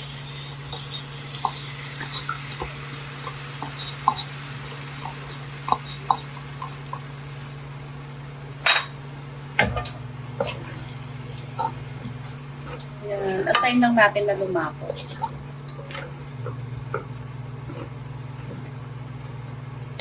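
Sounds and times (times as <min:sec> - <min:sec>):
sauce bubbling in a pan: 0:00.0 - 0:12.9
steady low hum: 0:00.0 - 0:20.0.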